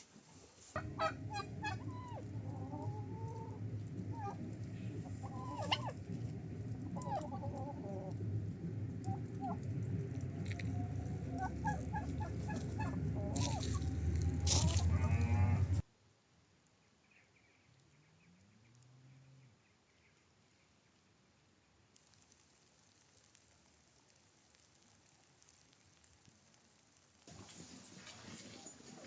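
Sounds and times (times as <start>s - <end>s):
steady low background noise: 0.0s - 17.7s
poultry clucking: 0.8s - 15.8s.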